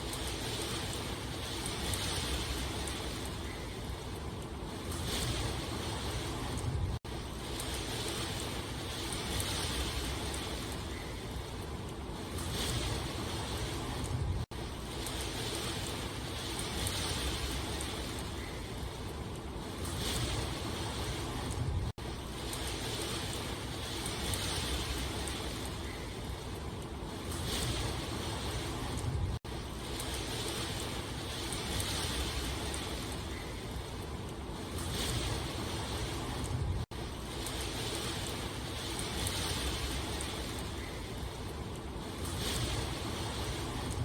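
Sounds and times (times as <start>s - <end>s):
steady rain hiss: 0.0s - 44.0s.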